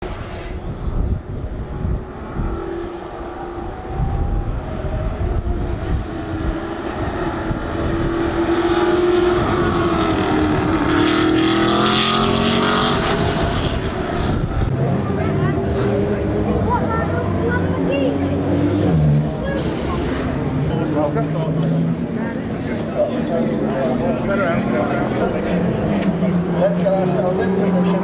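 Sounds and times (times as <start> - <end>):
low rumble: 0.0 - 8.5, 18.5 - 22.3
engine with wavering pitch: 0.0 - 28.0.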